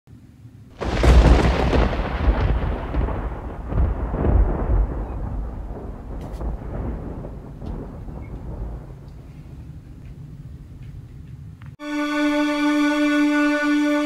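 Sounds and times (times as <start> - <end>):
loud boom: 0.8 - 9.3
deep rolling rumble: 0.8 - 11.6.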